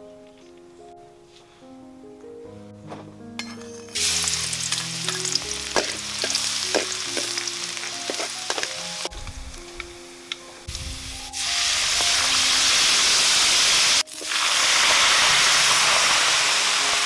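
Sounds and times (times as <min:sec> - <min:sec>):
food sizzling in oil: 0:03.9 - 0:17.0.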